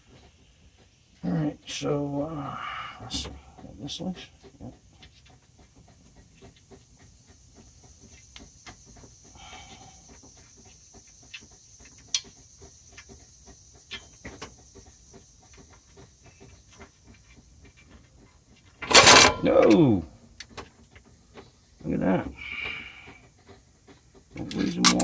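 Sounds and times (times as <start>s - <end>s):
hand wrench clicking on bolts: 24.4s - 25.0s.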